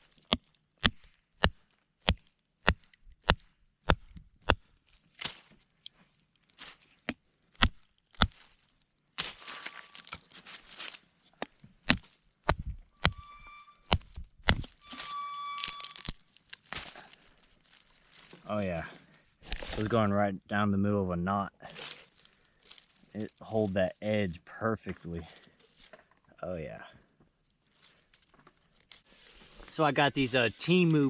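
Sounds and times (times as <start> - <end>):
wood scraping and cracking: 9.2 - 20.1.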